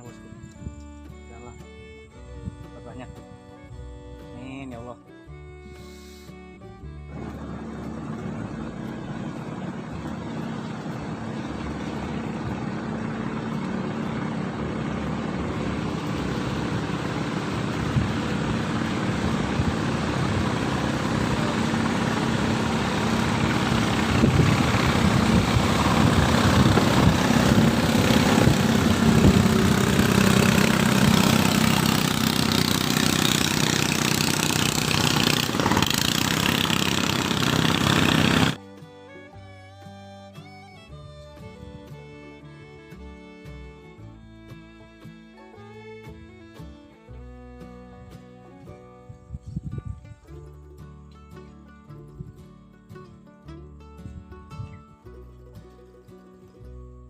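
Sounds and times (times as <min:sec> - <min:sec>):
boat engine running: 0:06.8 - 0:39.1.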